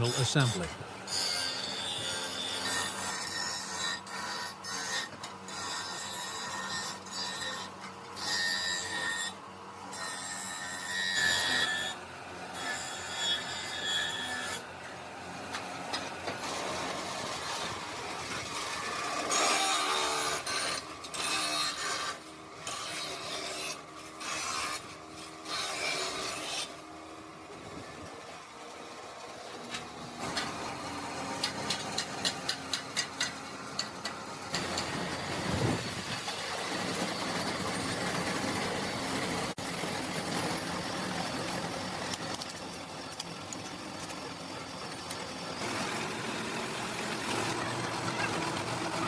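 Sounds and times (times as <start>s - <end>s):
workshop machine noise: 0.0s - 49.0s.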